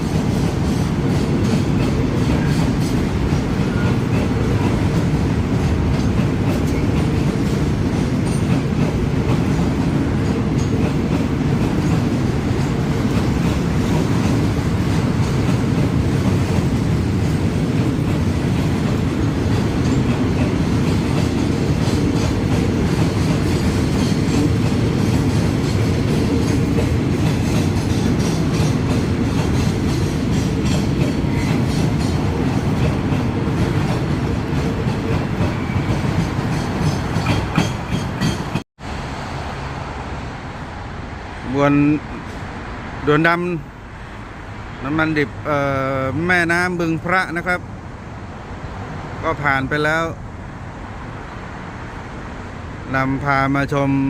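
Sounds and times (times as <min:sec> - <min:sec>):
clickety-clack over rail joints: 0:00.0 - 0:38.6
steel wheels rumbling on rails: 0:00.0 - 0:43.0.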